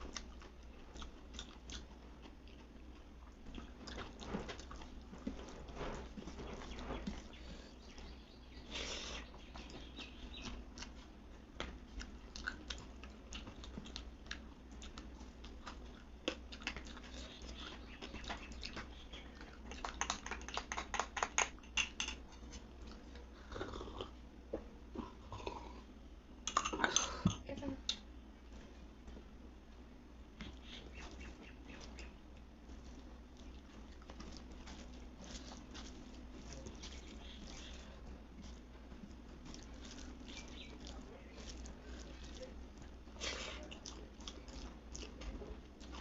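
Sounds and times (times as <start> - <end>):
crunching food: 0.0 - 24.2, 30.4 - 46.0
chewing food: 0.0 - 27.1, 30.3 - 46.0.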